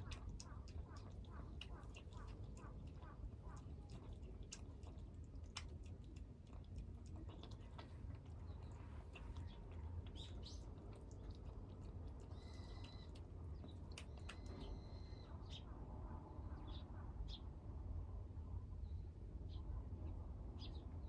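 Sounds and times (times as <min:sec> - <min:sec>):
kittens chewing clicks: 0:00.0 - 0:14.9
low steady hum: 0:00.0 - 0:21.0.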